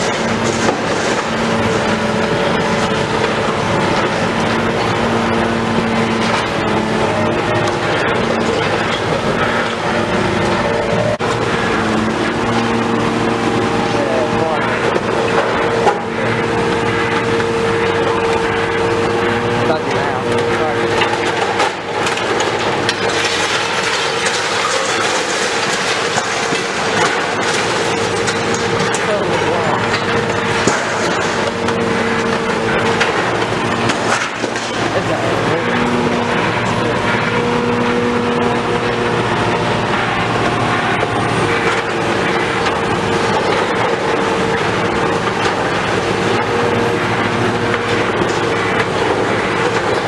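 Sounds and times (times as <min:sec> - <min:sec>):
demolition machinery clattering: 0:00.0 - 0:50.0
low engine tone: 0:00.0 - 0:50.0
metallic rattling and clanking: 0:13.9 - 0:50.0.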